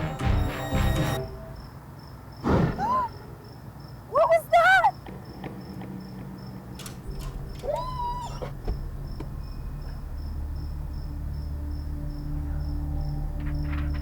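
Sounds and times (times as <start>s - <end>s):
crickets chirping: 0.4s - 14.0s
low hum: 6.8s - 14.0s
animal cry: 7.6s - 8.5s.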